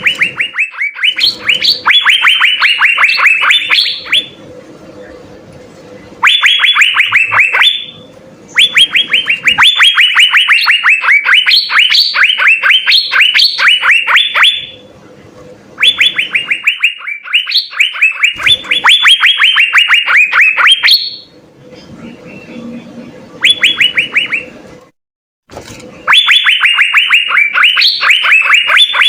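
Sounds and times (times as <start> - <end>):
bird singing rapid clear notes: 0.0 - 4.4, 6.2 - 14.8, 15.8 - 21.4, 22.0 - 24.6, 26.0 - 29.0.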